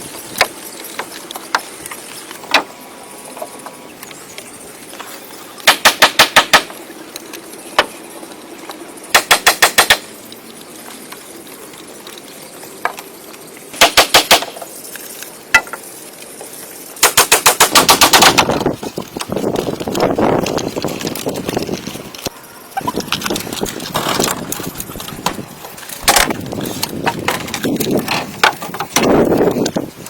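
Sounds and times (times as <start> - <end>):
rapid sharp knocks: 5.6 - 6.8, 9.1 - 10.1, 13.8 - 14.6, 17.0 - 18.6.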